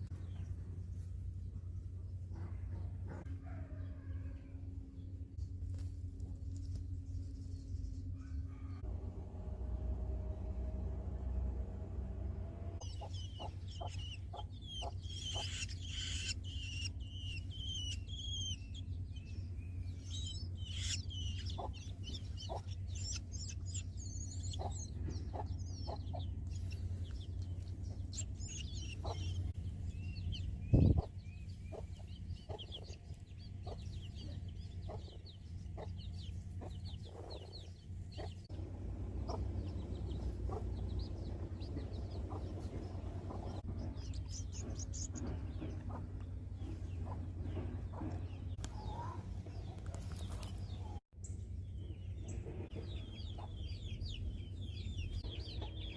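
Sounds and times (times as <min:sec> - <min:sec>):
steady low rumble: 0:00.0 - 0:55.9
nestlings chirping: 0:12.8 - 0:51.0, 0:51.8 - 0:55.9.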